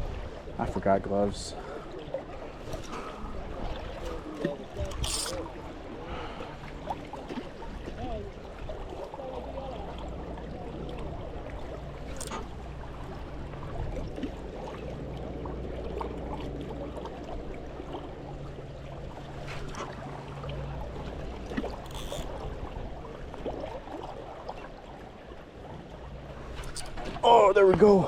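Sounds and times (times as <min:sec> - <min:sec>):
light clicks: 0:26.5 - 0:27.1.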